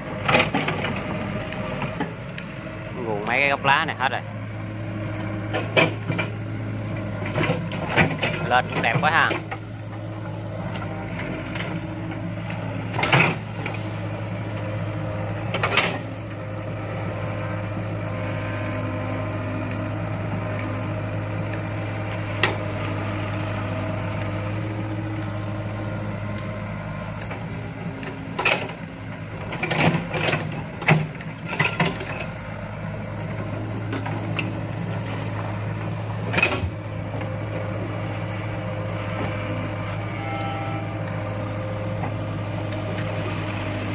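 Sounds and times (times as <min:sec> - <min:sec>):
excavator engine running: 0:00.0 - 0:43.9
machine clanks and knocks: 0:00.2 - 0:01.2, 0:05.5 - 0:06.4, 0:07.2 - 0:09.6, 0:12.5 - 0:13.8, 0:15.4 - 0:16.1, 0:28.0 - 0:28.8, 0:29.4 - 0:32.4, 0:36.2 - 0:36.8.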